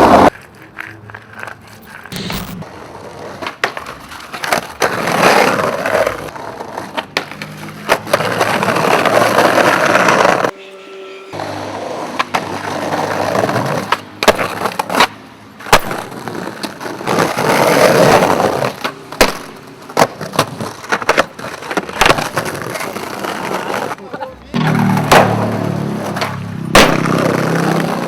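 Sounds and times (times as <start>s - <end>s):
skateboard cracking on ground: 0.0s - 10.5s, 11.4s - 28.0s
skateboard wheels rolling on pavement: 0.0s - 10.6s, 11.3s - 28.0s.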